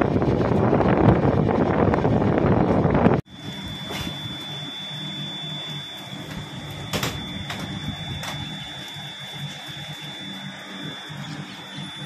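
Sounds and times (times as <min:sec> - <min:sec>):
train rumbling on rails: 0:00.0 - 0:03.2
high whine: 0:00.0 - 0:12.0.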